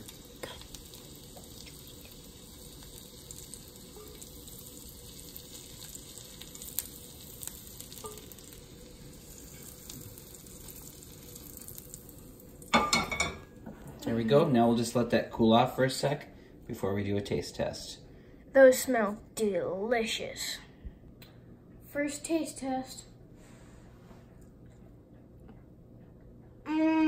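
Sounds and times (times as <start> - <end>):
mushrooms sizzling in butter: 0.0 - 13.4.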